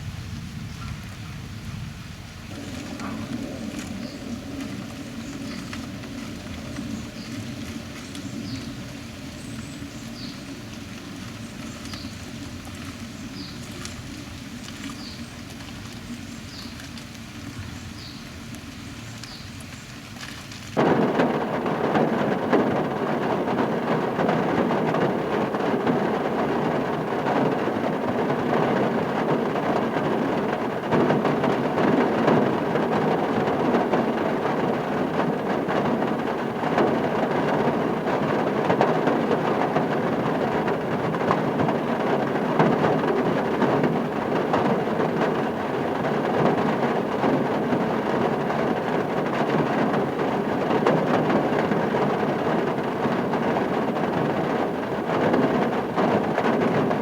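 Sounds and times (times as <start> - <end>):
heavy rain falling: 0.0 - 57.0
quiet low rumble: 2.4 - 17.8.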